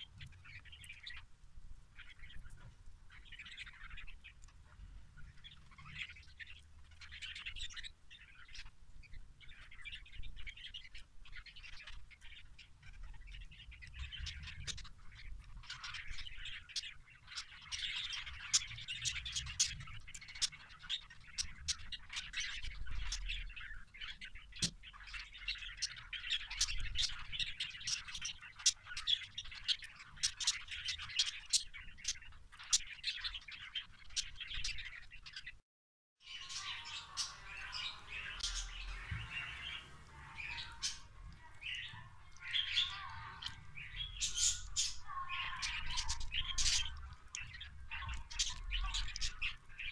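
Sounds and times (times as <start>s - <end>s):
cage birds chirping and twittering: 0.0s - 35.6s, 36.2s - 49.9s.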